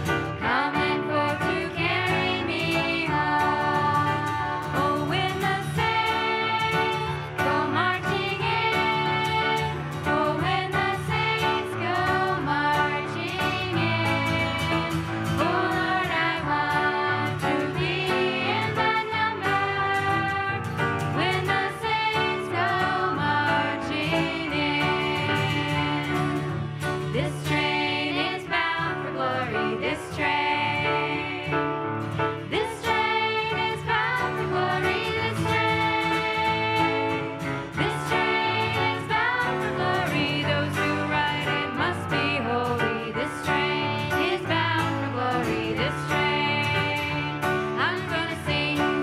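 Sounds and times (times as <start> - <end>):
voices singing a song: 0.3 - 31.8, 32.4 - 49.0.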